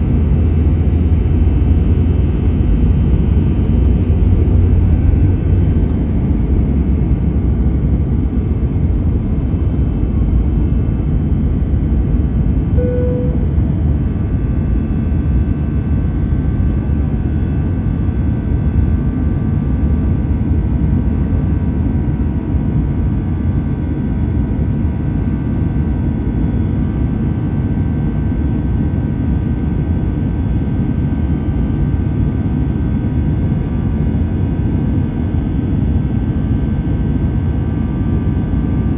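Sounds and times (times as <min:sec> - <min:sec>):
jet engines rumbling: 0:00.0 - 0:19.9
short tone: 0:12.8 - 0:14.4
faint steady tones: 0:12.8 - 0:14.8.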